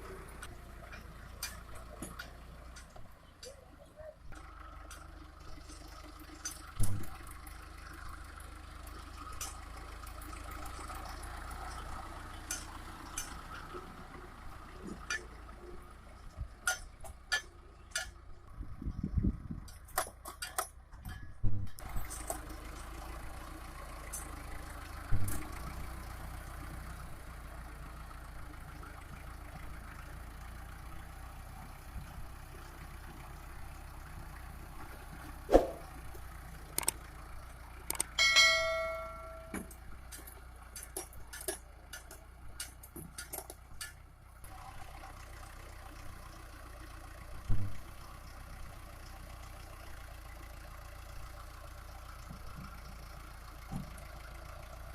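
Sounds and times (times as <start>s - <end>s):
tractor diesel engine running: 0.0s - 54.9s
brief ringing tone: 38.2s - 39.6s.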